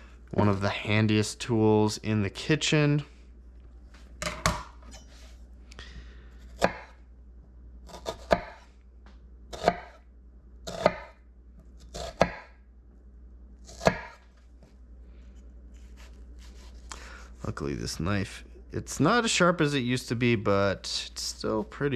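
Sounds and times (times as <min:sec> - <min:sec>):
knife chopping on cutting board: 0:06.6 - 0:07.0, 0:07.9 - 0:08.6, 0:09.5 - 0:10.0, 0:10.7 - 0:11.2, 0:11.9 - 0:12.5, 0:13.7 - 0:14.2.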